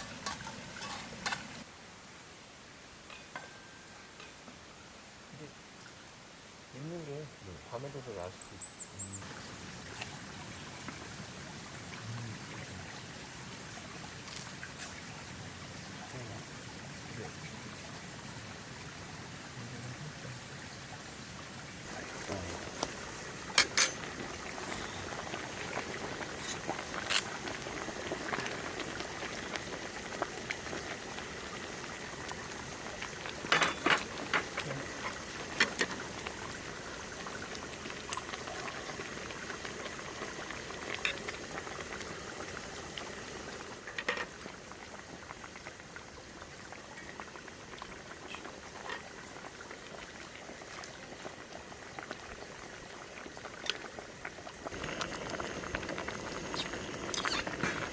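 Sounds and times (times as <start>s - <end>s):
food hissing in a pan: 54.7s - 57.9s.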